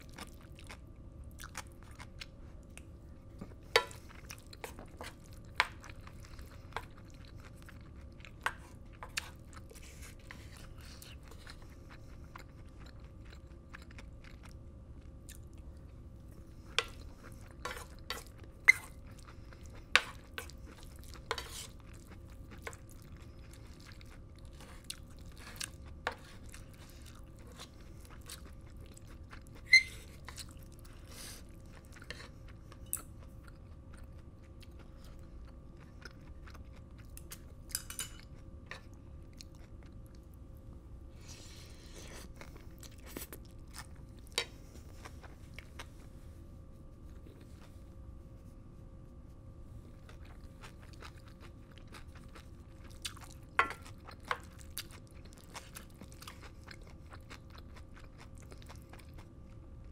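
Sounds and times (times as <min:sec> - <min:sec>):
close-miked chewing: 0:00.0 - 0:48.4, 0:49.0 - 0:59.9.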